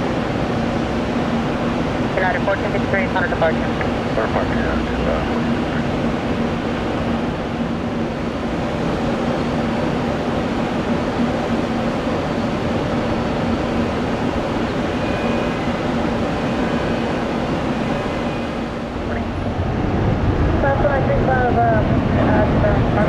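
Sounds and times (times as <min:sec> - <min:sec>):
low hum: 0:00.0 - 0:11.0, 0:13.0 - 0:23.0
jet engines roaring: 0:00.0 - 0:23.0.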